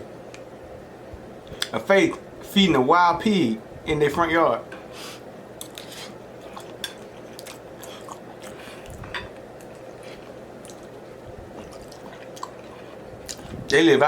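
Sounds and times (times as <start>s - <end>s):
chewing and biting: 5.6s - 13.6s.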